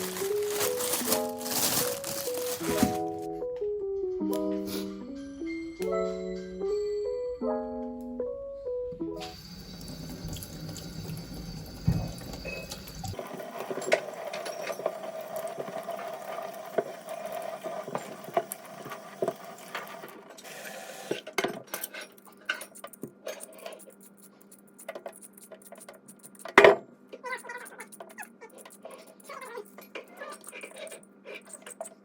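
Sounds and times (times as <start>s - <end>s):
tap water running into sink: 9.2s - 21.2s.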